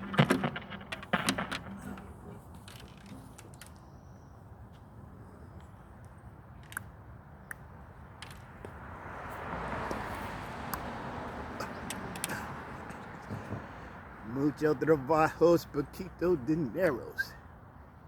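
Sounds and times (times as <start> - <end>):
handling clicks and knocks: 0.0 - 3.9.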